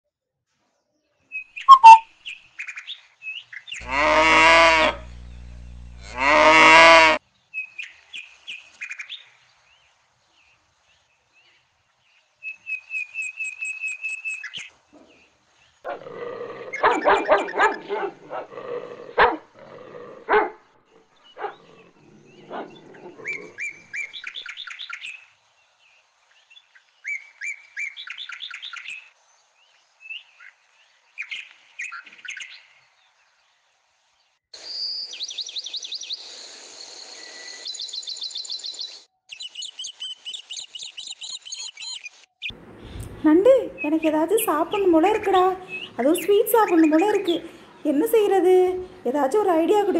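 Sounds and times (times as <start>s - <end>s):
birds chirping: 1.4s - 6.6s, 16.6s - 18.5s, 20.3s - 29.1s, 34.6s - 49.9s
short animal calls: 1.7s - 2.0s
cow mooing: 3.8s - 7.2s.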